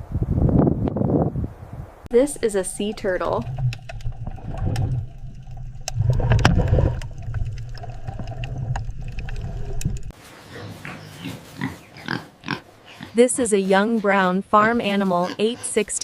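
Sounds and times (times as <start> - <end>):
water gurgling: 2.1 - 10.1
underwater clicks: 2.2 - 10.1
underwater rumble: 2.2 - 10.1.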